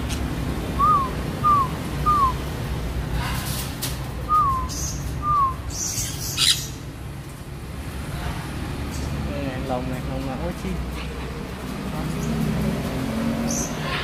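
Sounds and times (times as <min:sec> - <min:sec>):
caged bird whistled calls: 0:00.8 - 0:02.4, 0:04.2 - 0:06.8.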